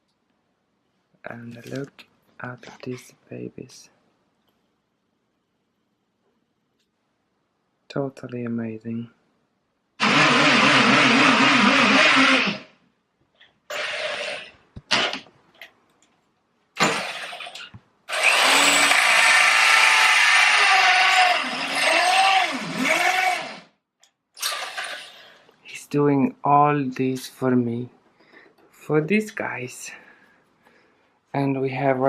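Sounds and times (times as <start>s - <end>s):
power drill running: 10.0s - 12.7s, 13.7s - 15.2s, 16.8s - 23.7s, 24.4s - 25.3s.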